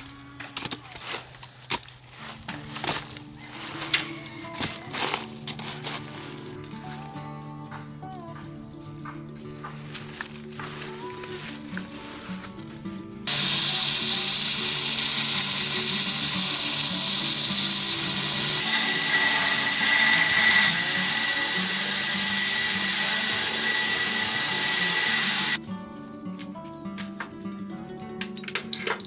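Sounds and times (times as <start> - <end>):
background music: 2.3 - 29.0
power tool cutting steel: 13.3 - 25.6.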